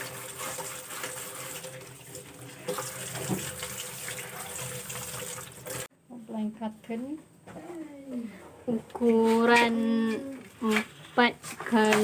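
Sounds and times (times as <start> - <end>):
tap water running into sink: 0.0 - 5.9.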